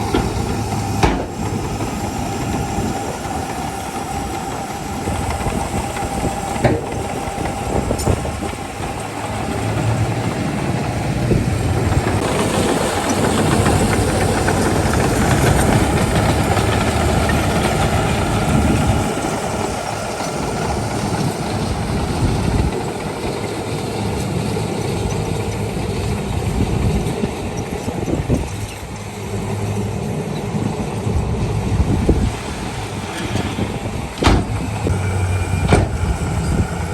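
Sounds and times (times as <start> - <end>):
metal clanking: 0.0 - 2.6, 32.4 - 36.9
heavy machinery diesel engine: 0.0 - 36.9.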